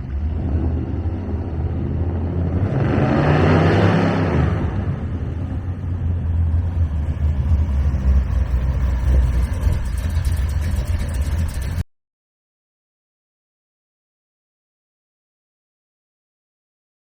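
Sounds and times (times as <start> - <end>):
car engine idling: 5.0 - 11.8.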